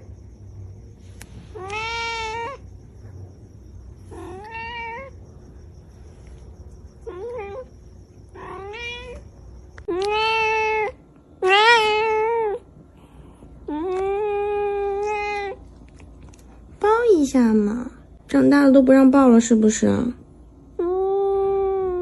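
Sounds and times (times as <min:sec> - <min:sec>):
cat meowing: 0:01.5 - 0:02.6, 0:04.1 - 0:05.2, 0:08.4 - 0:09.2, 0:09.9 - 0:12.6.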